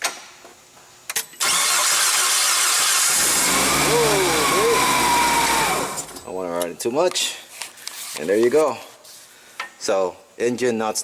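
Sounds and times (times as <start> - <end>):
engine cranking and running: 1.4 - 6.3.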